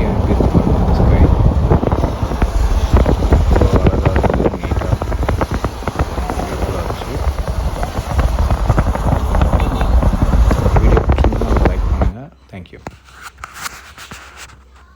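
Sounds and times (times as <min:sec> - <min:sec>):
sharp crackles: 0:00.0 - 0:12.2
wind buffeting microphone: 0:00.0 - 0:12.2.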